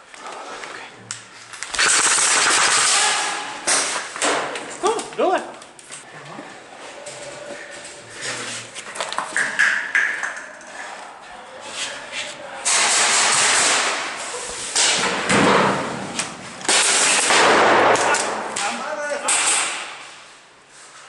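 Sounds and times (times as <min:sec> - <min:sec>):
full-auto airsoft gun fire: 0:01.8 - 0:03.9, 0:12.6 - 0:14.2, 0:16.7 - 0:18.5.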